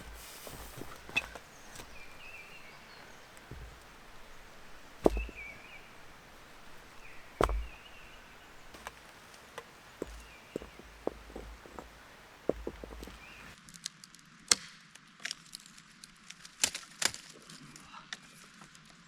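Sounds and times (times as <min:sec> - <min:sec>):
axe chopping wood: 0:00.0 - 0:11.9.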